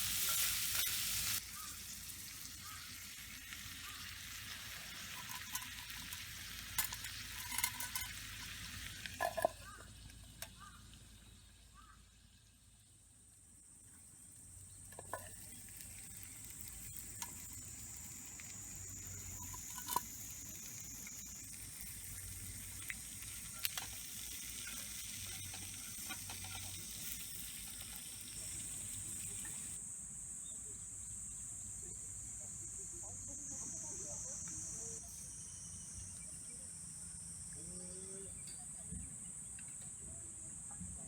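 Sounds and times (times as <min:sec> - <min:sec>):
food sizzling in a skillet: 0:00.0 - 0:12.0, 0:13.8 - 0:29.8.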